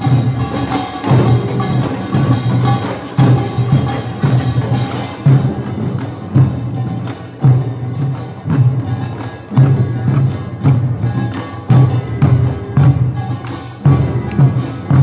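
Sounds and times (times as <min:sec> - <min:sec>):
percussion band playing: 0:00.0 - 0:15.0.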